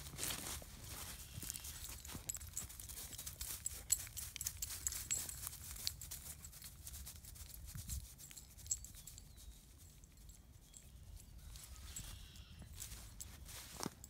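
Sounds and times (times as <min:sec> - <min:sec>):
footsteps crunching on frozen ground: 0:00.0 - 0:08.0, 0:11.5 - 0:14.0.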